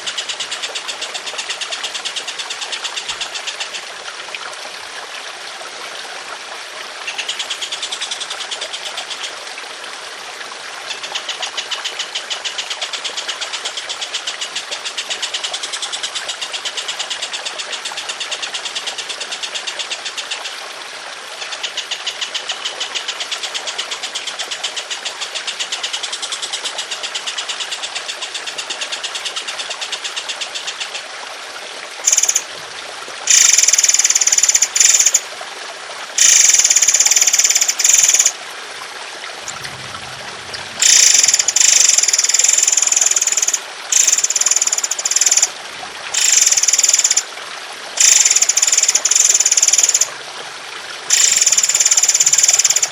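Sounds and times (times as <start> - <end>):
trickle of water: 0.0 - 52.9
harsh bird calls: 39.4 - 44.1
bird singing rapid pulsing song: 39.5 - 45.5.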